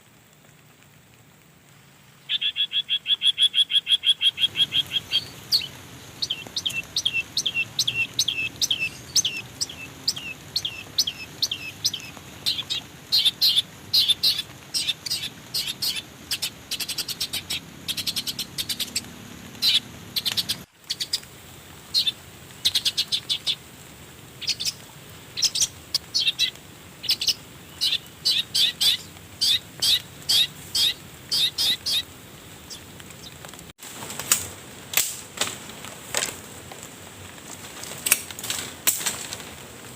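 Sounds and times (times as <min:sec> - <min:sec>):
faint forest background noise: 0:00.0 - 0:39.9
bird chirping: 0:02.2 - 0:21.2, 0:21.9 - 0:23.6, 0:24.4 - 0:24.8, 0:25.4 - 0:33.4.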